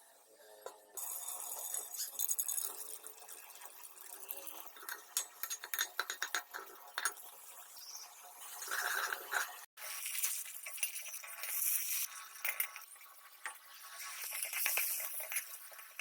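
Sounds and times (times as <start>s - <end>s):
cooking utensils clinking: 10.4s - 13.6s.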